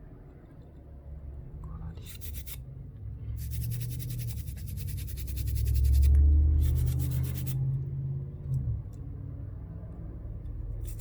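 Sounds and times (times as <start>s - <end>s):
toothbrush scrubbing circuit board: 2.0s - 2.6s, 3.4s - 7.6s.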